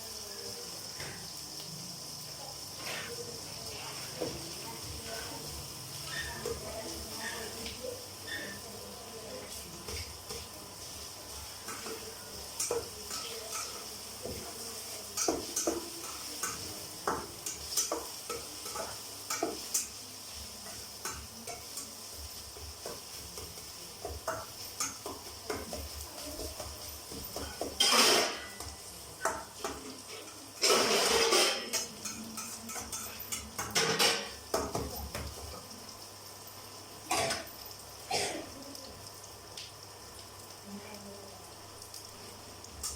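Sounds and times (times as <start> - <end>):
hot oil sizzling: 0.0 - 42.9
spoon scraping a metal pan: 2.8 - 3.2, 6.0 - 6.6, 8.3 - 8.6, 27.1 - 34.4.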